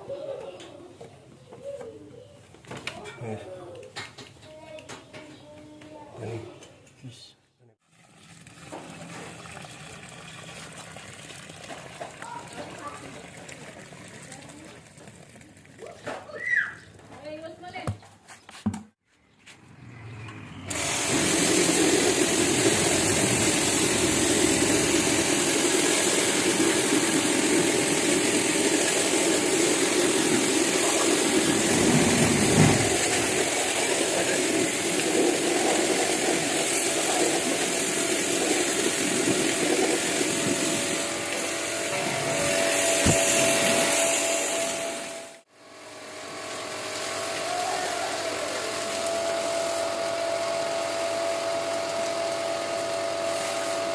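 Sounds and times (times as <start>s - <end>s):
pressure washer spraying: 20.7s - 45.4s, 53.2s - 53.9s.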